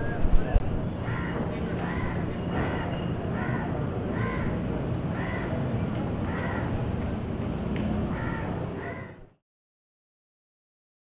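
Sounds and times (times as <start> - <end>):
bird calling: 0.0 - 5.6
low background noise: 0.0 - 9.4.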